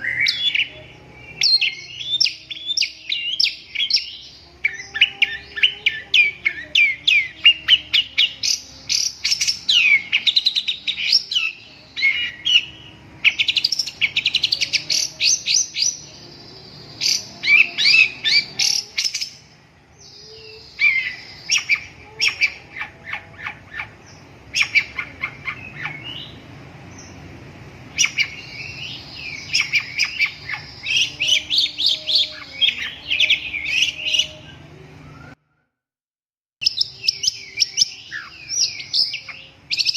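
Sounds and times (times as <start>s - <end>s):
bird singing chattering notes: 20.2s - 27.2s, 27.9s - 34.4s.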